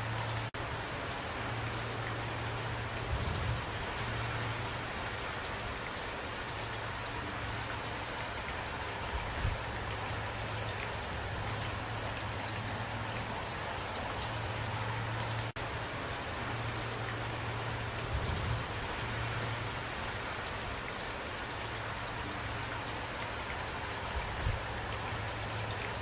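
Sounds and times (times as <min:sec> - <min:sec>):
steady rainfall: 0:00.0 - 0:26.0.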